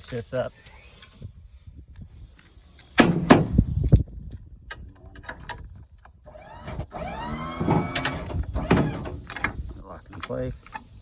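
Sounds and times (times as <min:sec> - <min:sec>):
creaking squeal sliding down: 0:06.3 - 0:09.4.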